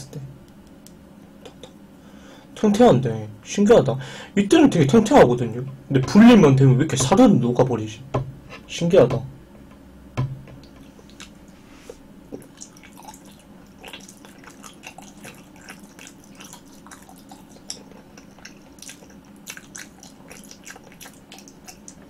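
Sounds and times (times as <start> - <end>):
wet sticky chewing clicks: 10.6 - 11.4, 12.3 - 22.0.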